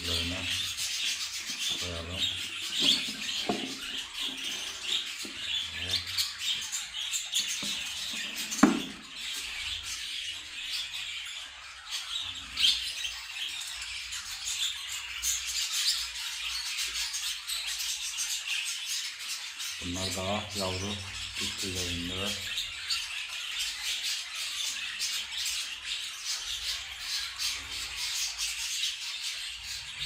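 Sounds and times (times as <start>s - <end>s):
budgerigars chirping: 0.0s - 30.0s
sharp knock: 8.6s - 9.0s.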